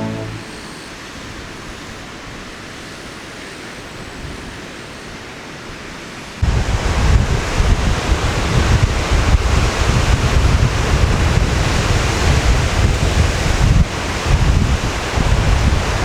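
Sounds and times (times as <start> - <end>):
wind buffeting microphone: 6.4 - 16.0.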